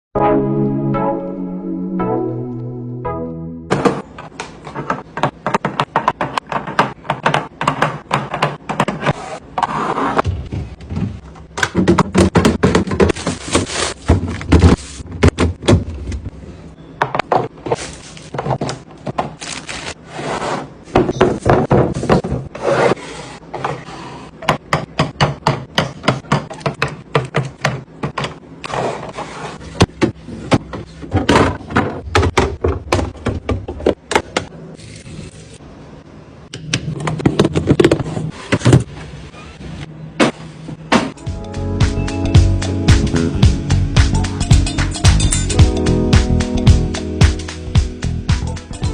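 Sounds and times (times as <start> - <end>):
containers scraping on shelves: 8.8 - 11.2, 17.5 - 24.4, 28.6 - 32.1.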